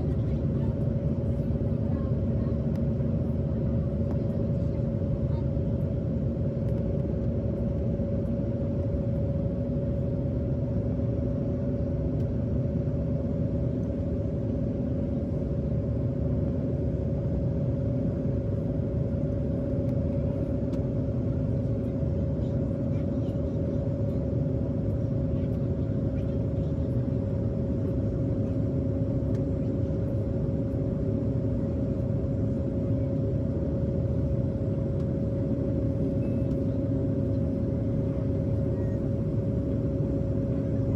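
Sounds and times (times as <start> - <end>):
airliner cabin noise: 14.6 - 40.9.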